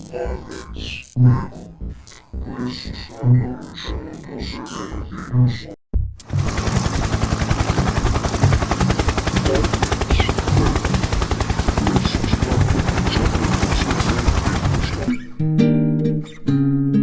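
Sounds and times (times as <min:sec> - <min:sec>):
stuttering rattling jingle: 0:06.4 - 0:15.1.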